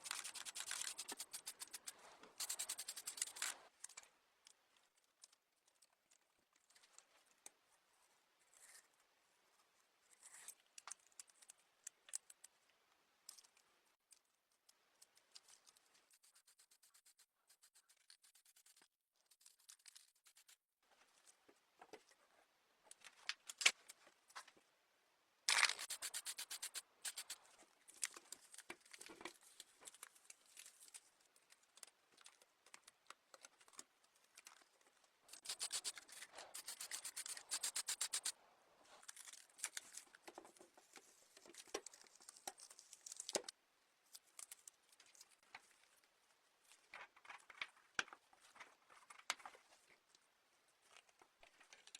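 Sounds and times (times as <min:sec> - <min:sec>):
rapid rasping strokes: 0:00.0 - 0:03.6, 0:16.1 - 0:20.6, 0:25.7 - 0:27.4, 0:35.3 - 0:38.3
scratchy rubbing: 0:00.0 - 0:03.6, 0:16.1 - 0:20.6, 0:25.6 - 0:27.4, 0:35.4 - 0:38.3.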